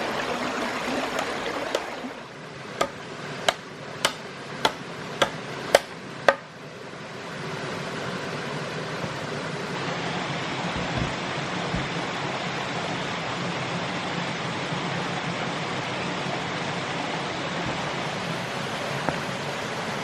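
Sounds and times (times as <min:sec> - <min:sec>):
tool knocking: 0:02.8 - 0:06.5, 0:10.8 - 0:12.0.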